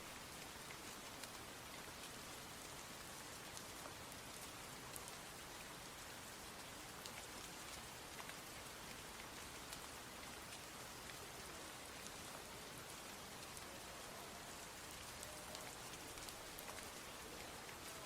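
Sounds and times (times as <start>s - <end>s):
steady rain hissing: 0.0s - 18.0s
raindrops ticking: 6.6s - 18.0s.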